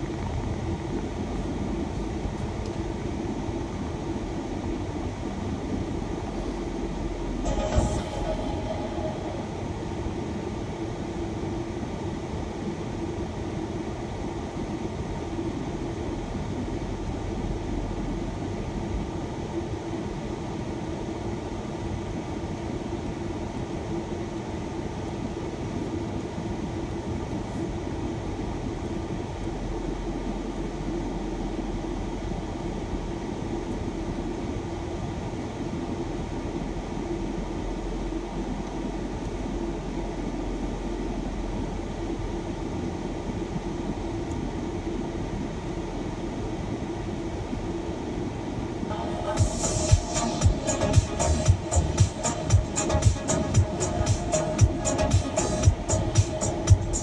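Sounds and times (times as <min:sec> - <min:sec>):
van engine drone: 0:00.0 - 0:10.3, 0:48.9 - 0:57.0
road noise inside vehicle: 0:00.0 - 0:57.0.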